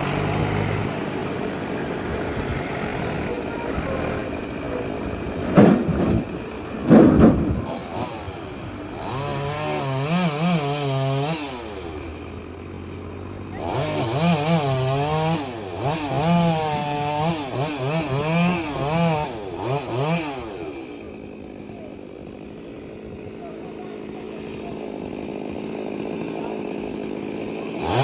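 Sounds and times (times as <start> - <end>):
chainsaw revving: 0.0 - 28.0.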